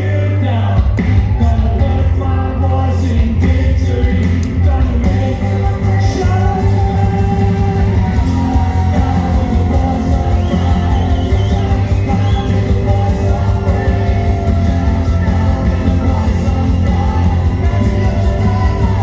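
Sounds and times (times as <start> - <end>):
person singing long notes: 0.0 - 19.0
worship band playing: 0.0 - 19.0.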